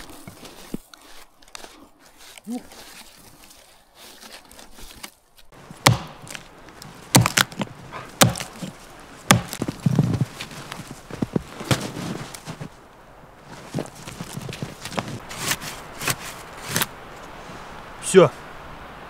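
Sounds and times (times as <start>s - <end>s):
sharp knocks or crunches: 5.8s - 6.5s, 7.1s - 8.7s, 9.3s - 10.5s.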